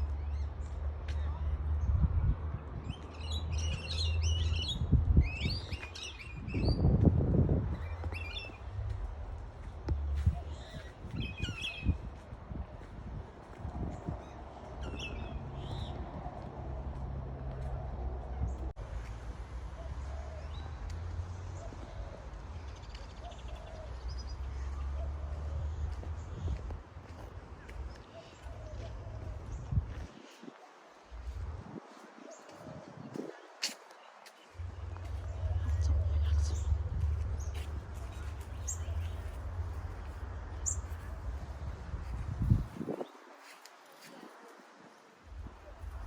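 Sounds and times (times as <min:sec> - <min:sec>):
steady low rumble: 0:00.0 - 0:28.0, 0:34.6 - 0:42.8
birds calling: 0:14.1 - 0:18.7
small birds chirping: 0:32.2 - 0:41.4.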